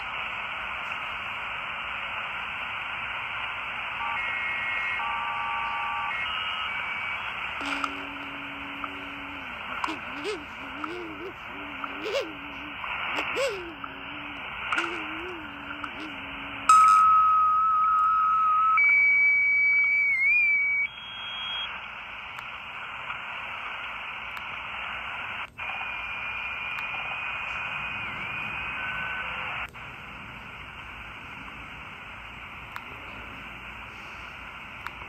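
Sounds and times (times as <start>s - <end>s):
radio static hiss: 0.0s - 35.0s
radio whistles: 3.5s - 21.8s, 22.9s - 29.7s.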